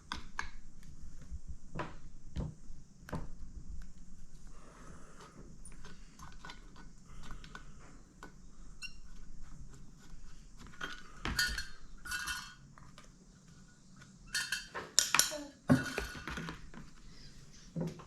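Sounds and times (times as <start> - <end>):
metal parts and tools clinking: 10.8 - 12.6, 14.3 - 16.3.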